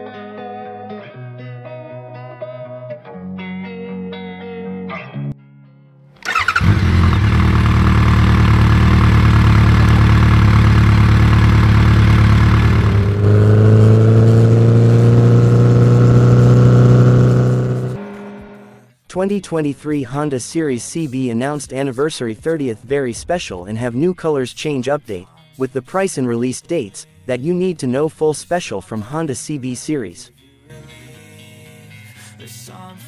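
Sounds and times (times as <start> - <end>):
motorcycle engine running loudly: 6.2 - 18.8.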